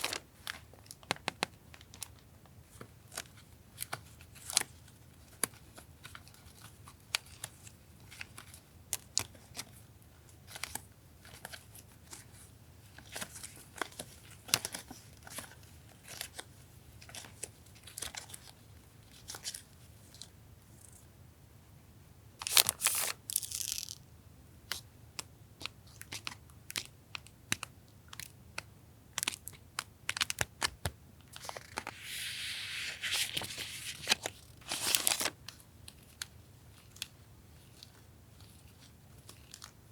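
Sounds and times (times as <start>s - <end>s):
packet crinkling: 22.4s - 24.0s, 31.4s - 35.4s
stationery packets rustling: 22.5s - 24.0s, 31.3s - 35.6s
packet tearing: 31.5s - 35.3s.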